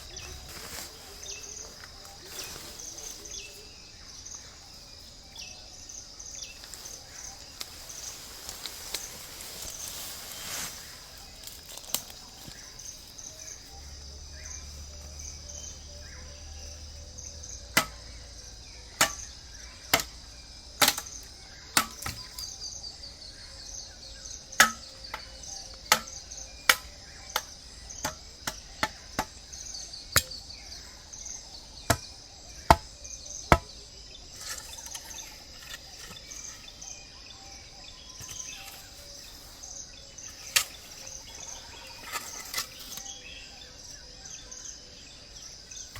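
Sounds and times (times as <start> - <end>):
insects trilling: 0.0 - 45.9
knife chopping bamboo: 17.7 - 18.2, 18.9 - 20.2, 20.8 - 21.2, 21.8 - 22.5, 24.6 - 29.6, 30.2 - 30.5, 31.8 - 33.8.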